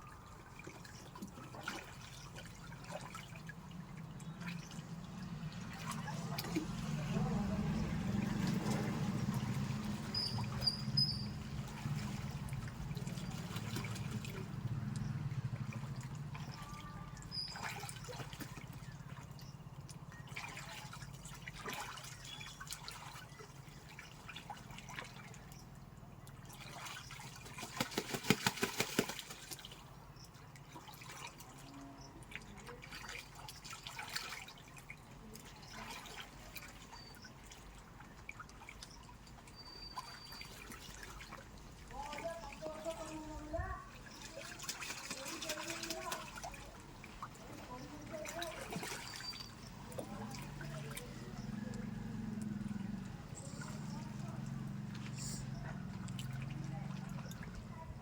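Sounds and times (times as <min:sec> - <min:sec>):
water dripping: 0:00.0 - 0:57.8
water trickling and splashing: 0:00.0 - 0:58.0.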